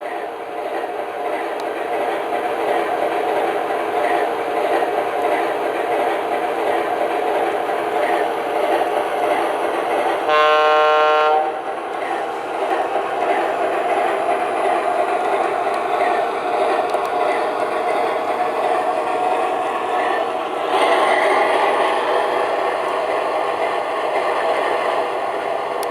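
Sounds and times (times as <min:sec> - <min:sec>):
model locomotive diesel engine sound: 0:00.0 - 0:25.9
locomotive horn blast: 0:10.3 - 0:11.6.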